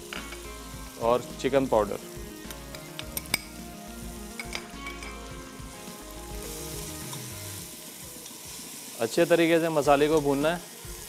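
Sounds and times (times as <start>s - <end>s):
spices sizzling in hot oil: 0.0s - 11.0s
spoon clicking on pot: 2.7s - 3.5s.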